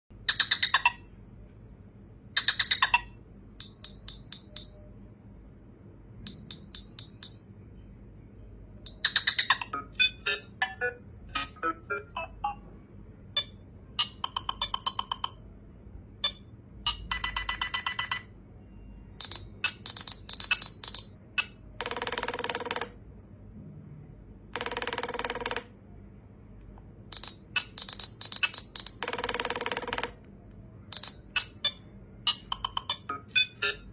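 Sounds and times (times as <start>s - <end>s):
rapid electronic clicks and blips: 27.2s - 30.1s.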